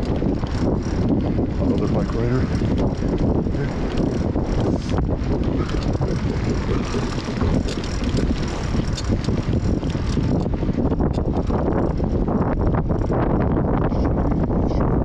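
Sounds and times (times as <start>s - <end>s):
bicycle clicks and rattles: 0.0s - 14.5s
wind buffeting microphone: 0.0s - 15.0s.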